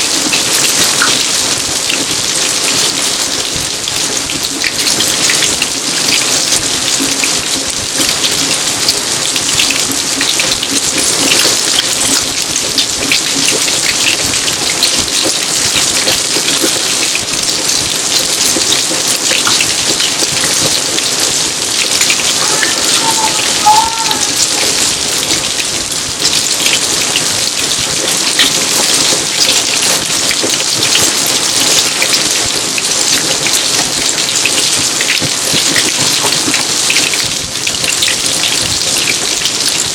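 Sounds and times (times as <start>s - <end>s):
rain pattering on garden: 0.0s - 39.9s
faint short chirp: 22.4s - 24.4s.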